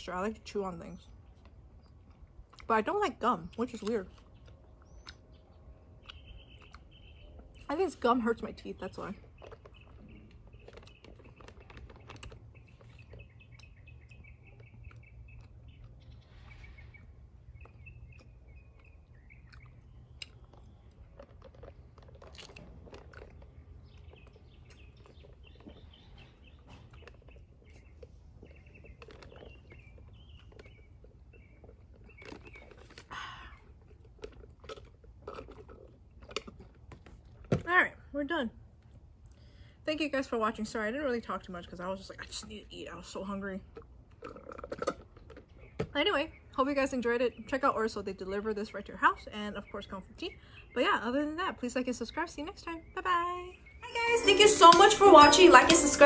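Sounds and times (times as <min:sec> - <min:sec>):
faint birds chirping: 0:00.0 - 0:56.0
wet chewing: 0:01.0 - 0:37.6, 0:43.0 - 0:46.6.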